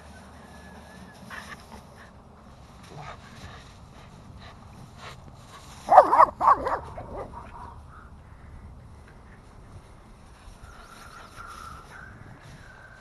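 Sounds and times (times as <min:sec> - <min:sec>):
dog barking and yipping: 0:05.9 - 0:07.8.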